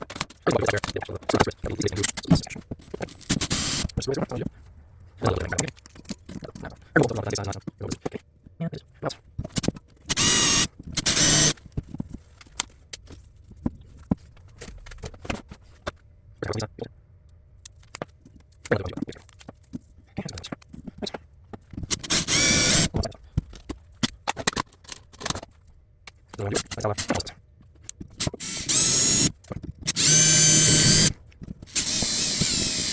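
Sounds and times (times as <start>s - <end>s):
bit scraping against screw: 0.6s - 4.0s, 9.6s - 11.6s, 21.8s - 23.2s, 28.0s - 29.3s, 29.9s - 32.9s
power drill drilling: 3.2s - 3.9s, 10.1s - 11.6s, 21.9s - 22.9s, 28.2s - 29.3s, 29.9s - 32.9s.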